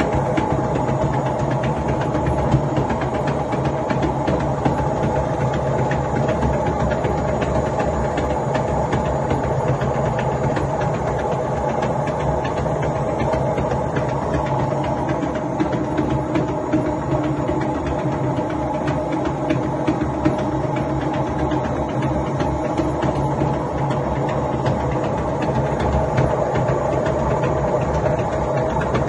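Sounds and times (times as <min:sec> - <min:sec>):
rapid clicking rattle: 0:00.0 - 0:29.0
washing machine drum humming: 0:00.0 - 0:29.0.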